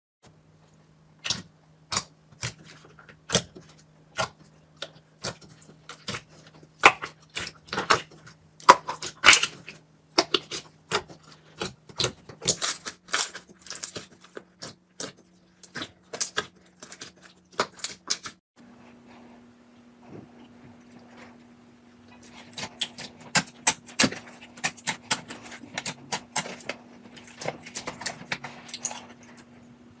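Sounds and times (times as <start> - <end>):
slime squelching and popping: 1.2 - 18.4
faint steady hum: 18.6 - 30.0.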